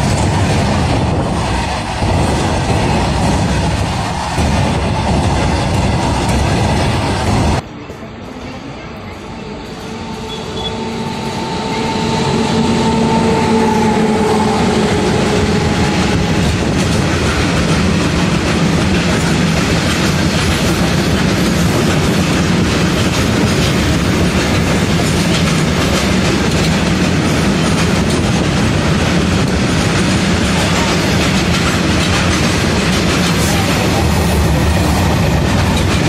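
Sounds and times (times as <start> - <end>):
locomotive humming tone: 0.2 - 18.5.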